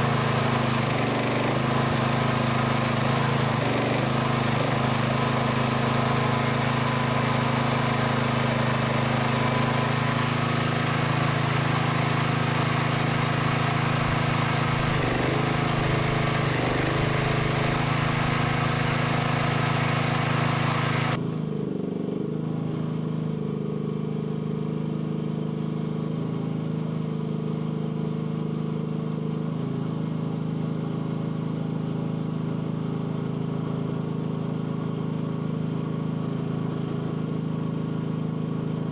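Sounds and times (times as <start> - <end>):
small excavator engine running: 0.0 - 23.2
hiss: 11.6 - 21.2.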